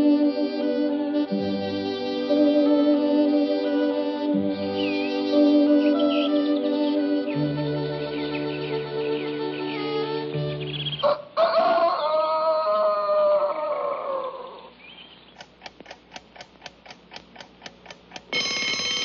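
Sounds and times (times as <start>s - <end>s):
orchestral music: 0.0s - 10.9s, 18.4s - 19.0s
rooster crowing: 11.0s - 14.7s
sharp ticks: 15.4s - 19.0s.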